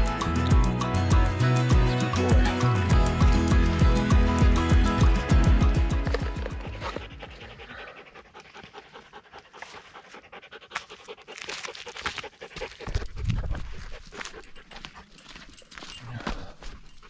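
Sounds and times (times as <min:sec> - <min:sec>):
music: 0:00.0 - 0:07.2
dog panting rapidly: 0:06.6 - 0:13.2.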